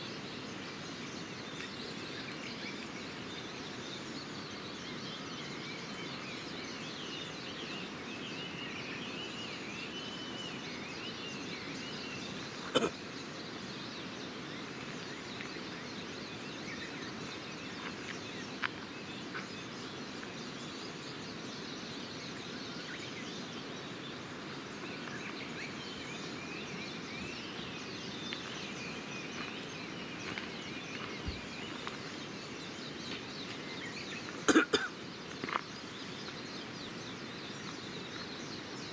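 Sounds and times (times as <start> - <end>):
distant birds chirping: 22.8 - 38.9.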